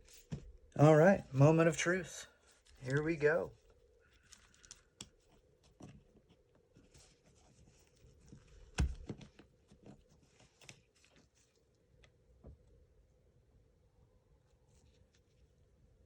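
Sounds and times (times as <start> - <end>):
faint clicks and rustles: 2.4 - 12.7.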